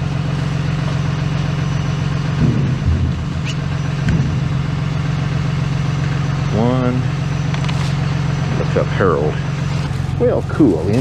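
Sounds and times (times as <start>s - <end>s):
engine humming: 0.0s - 11.0s
short rising squeak: 2.6s - 5.1s.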